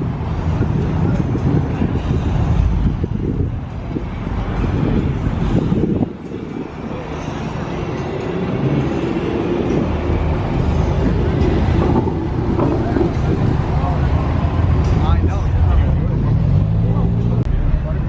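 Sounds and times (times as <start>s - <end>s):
street noise: 0.0s - 18.0s
car engine running: 10.6s - 15.2s.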